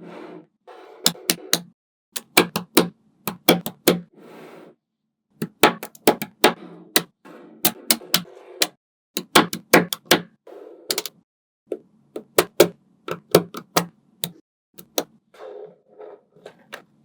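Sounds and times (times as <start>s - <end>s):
magnetic balls clicking together: 1.3s - 4.0s, 10.9s - 11.1s.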